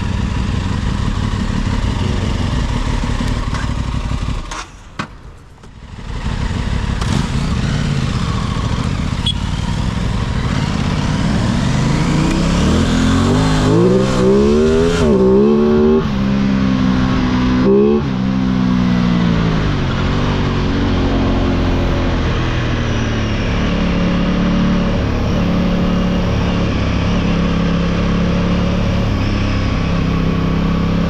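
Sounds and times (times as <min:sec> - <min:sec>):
motorcycle engine revving: 0:00.0 - 0:04.8, 0:05.8 - 0:31.0.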